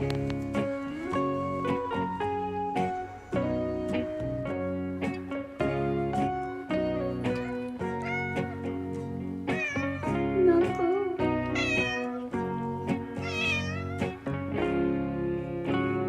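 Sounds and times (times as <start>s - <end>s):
background music: 0.0s - 16.0s
cat meowing: 7.4s - 8.7s, 9.5s - 10.2s, 11.4s - 12.4s, 13.0s - 14.2s.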